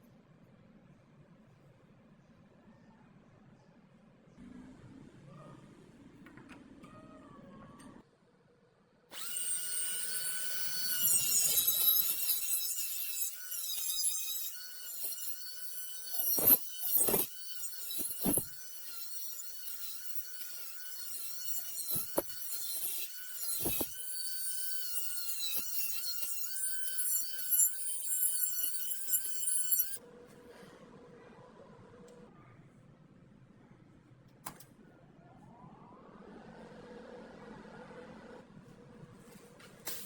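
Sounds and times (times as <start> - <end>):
power tool high whine: 9.1 - 30.0.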